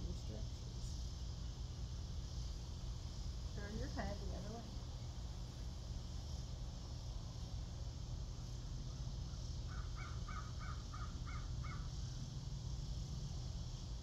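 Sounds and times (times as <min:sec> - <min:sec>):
low background rumble: 0:00.0 - 0:14.0
bird calling: 0:09.7 - 0:11.9.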